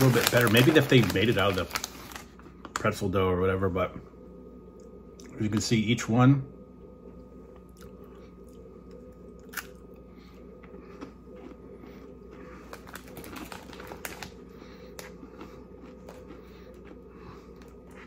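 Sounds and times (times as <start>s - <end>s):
crunching chews: 7.5s - 18.0s
crunchy snack bite crack: 9.3s - 9.9s.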